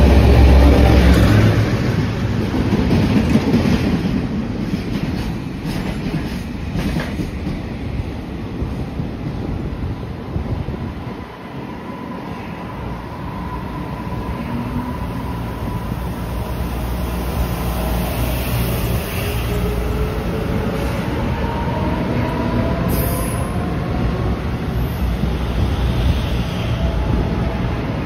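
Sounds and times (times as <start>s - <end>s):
electric train slowing: 11.1s - 28.0s.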